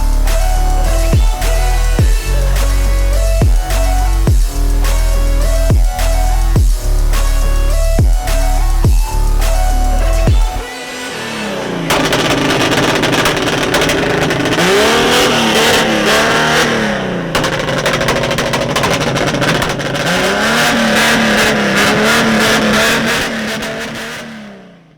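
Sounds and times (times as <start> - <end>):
exhaust pulses rattling: 0.0 - 10.6, 11.8 - 24.2
car engine revving: 0.0 - 24.9.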